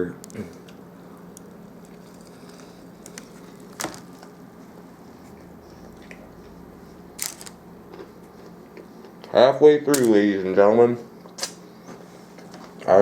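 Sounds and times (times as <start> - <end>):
steady low hum: 0.0 - 13.0
person chewing: 0.2 - 9.3.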